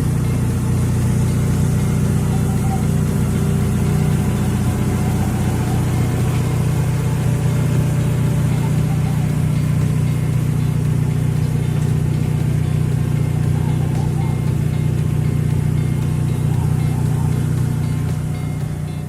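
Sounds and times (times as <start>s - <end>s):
motor humming: 0.0s - 19.0s.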